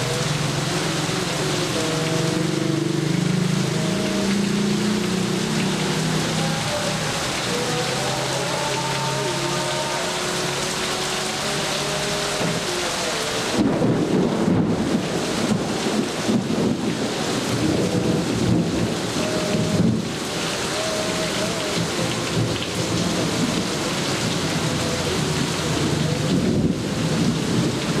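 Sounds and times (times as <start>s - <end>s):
heavy rain falling: 0.0s - 28.0s
thunder rumbling: 13.6s - 20.1s.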